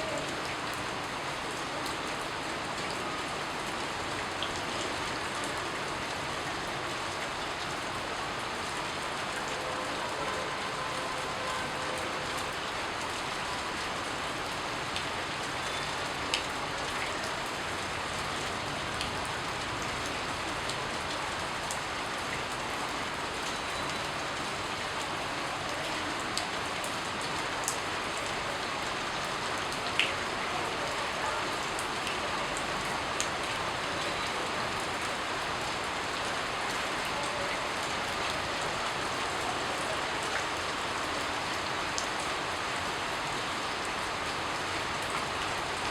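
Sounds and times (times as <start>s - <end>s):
sharp raindrops: 0.0s - 45.9s.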